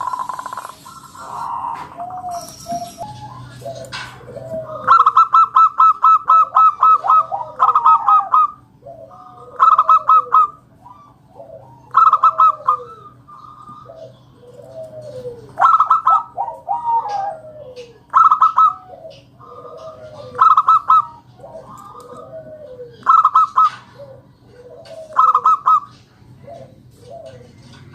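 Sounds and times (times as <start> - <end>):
dove coos: 0.0 - 27.9
doves singing staccato notes: 0.0 - 27.9.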